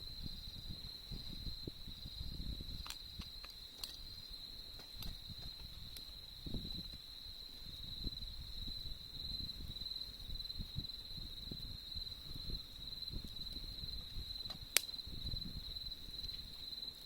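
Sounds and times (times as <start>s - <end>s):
campfire crackling: 0.0s - 17.0s
insects trilling: 0.0s - 17.0s
burning wood popping: 2.4s - 8.1s, 11.4s - 17.0s.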